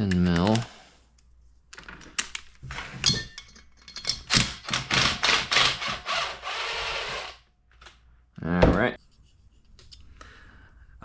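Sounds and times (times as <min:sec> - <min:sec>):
wrench clinking on metal: 0:03.0 - 0:04.9.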